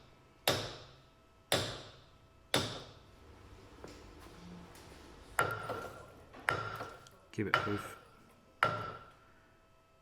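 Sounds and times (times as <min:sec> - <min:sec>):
hammer striking metal: 0:00.4 - 0:03.0, 0:06.5 - 0:08.0, 0:08.6 - 0:09.2.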